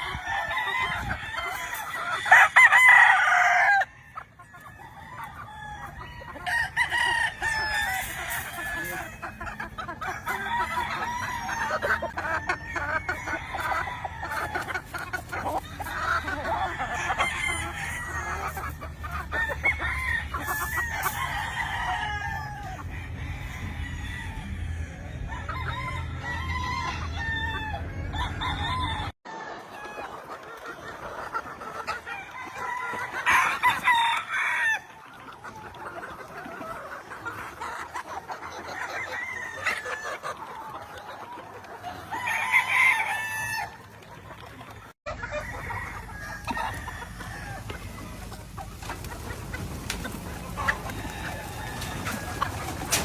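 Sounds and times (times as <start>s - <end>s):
roosters crowing: 0.0s - 30.4s, 31.3s - 43.9s, 45.1s - 53.0s
chickens clucking and calling: 0.0s - 53.0s.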